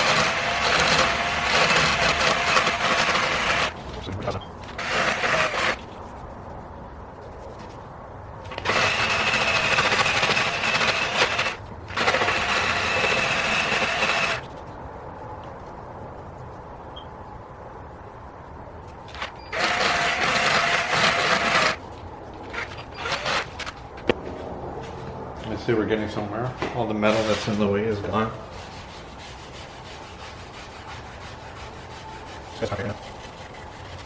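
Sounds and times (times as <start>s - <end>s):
power drill grinding metal: 0.0s - 3.8s, 4.8s - 5.8s, 8.5s - 14.4s, 19.5s - 21.8s, 22.5s - 23.6s.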